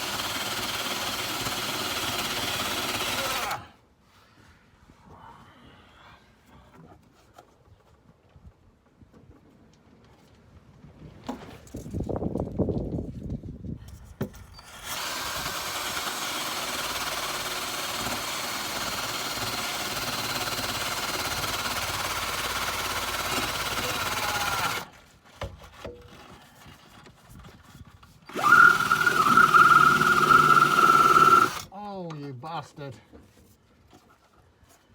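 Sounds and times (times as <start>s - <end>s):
power drill scrubbing rust: 0.0s - 3.7s, 14.6s - 25.0s, 28.2s - 31.7s.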